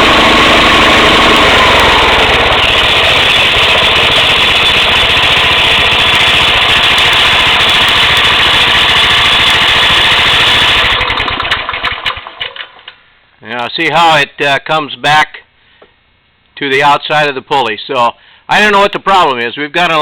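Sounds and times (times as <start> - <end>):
gasoline engine running loud: 0.0 - 12.5.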